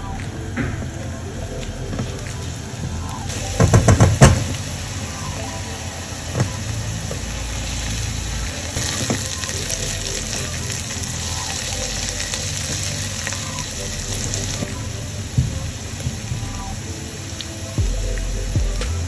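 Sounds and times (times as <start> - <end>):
spatula knocking wok: 3.6 - 4.6.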